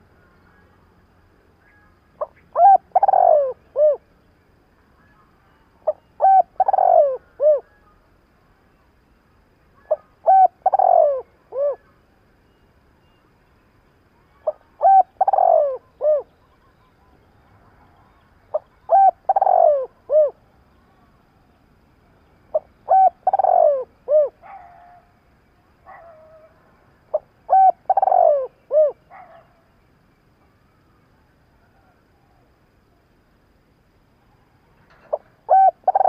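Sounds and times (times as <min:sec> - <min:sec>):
faint bird twittering: 0:00.0 - 0:36.0
dove cooing: 0:02.2 - 0:04.0, 0:05.8 - 0:07.8, 0:09.8 - 0:11.9, 0:14.4 - 0:16.4, 0:18.5 - 0:20.4, 0:22.5 - 0:25.1, 0:25.9 - 0:29.5, 0:34.9 - 0:36.0.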